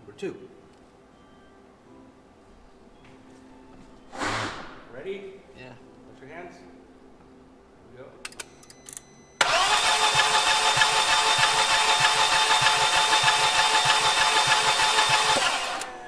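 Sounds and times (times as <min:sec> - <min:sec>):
engine cranking by starter motor: 0:09.4 - 0:16.0.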